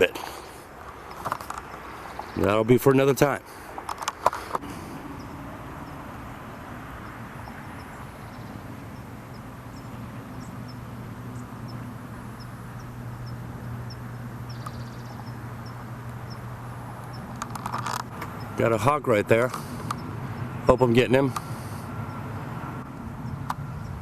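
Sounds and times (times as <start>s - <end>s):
low steady hum: 4.6s - 19.0s.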